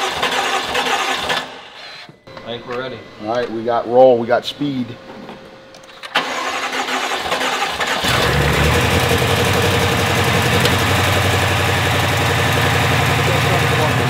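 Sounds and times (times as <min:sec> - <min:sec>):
engine cranking on starter: 0:00.0 - 0:01.8, 0:06.0 - 0:14.0
car engine idling: 0:08.0 - 0:14.0.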